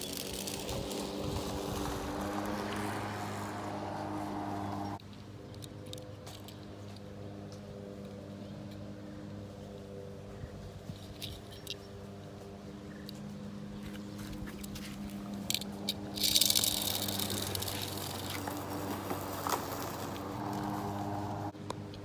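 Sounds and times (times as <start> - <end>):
toy cars clicking on plastic track: 0.0 - 2.0, 15.4 - 21.0
loud hissing rattle: 15.4 - 21.5.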